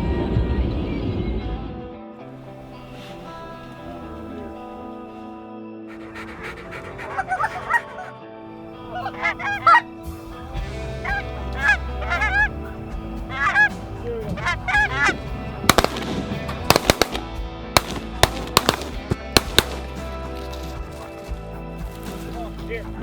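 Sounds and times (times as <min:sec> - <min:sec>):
faint background music: 0:00.0 - 0:23.0
geese honking: 0:05.9 - 0:08.1, 0:08.7 - 0:10.0, 0:10.6 - 0:17.2
shotgun shots: 0:15.7 - 0:20.4.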